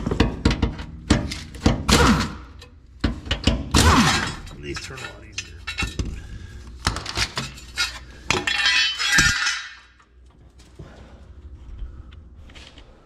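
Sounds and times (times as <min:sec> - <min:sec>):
metal parts clinking: 0:03.3 - 0:06.1, 0:06.9 - 0:10.1.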